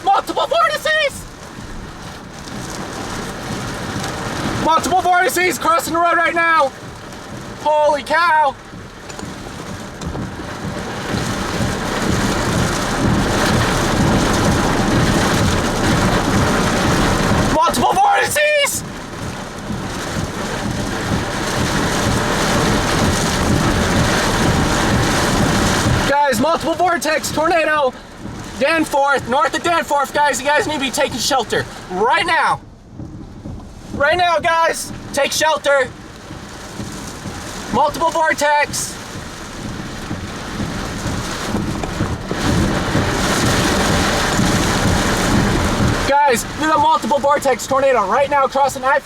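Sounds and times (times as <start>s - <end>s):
gusting wind: 0.0s - 48.3s
heavy rain: 0.0s - 49.0s
heavy low rumble: 18.8s - 48.5s.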